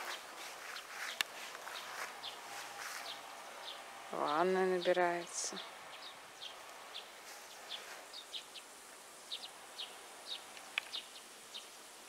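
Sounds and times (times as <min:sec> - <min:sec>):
small bird chirping: 0:09.3 - 0:11.8.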